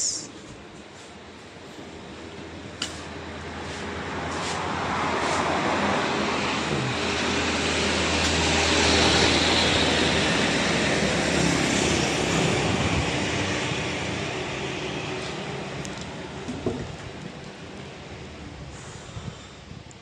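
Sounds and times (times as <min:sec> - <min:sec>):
road noise: 0:00.0 - 0:20.0
vehicle engine running: 0:06.2 - 0:10.9.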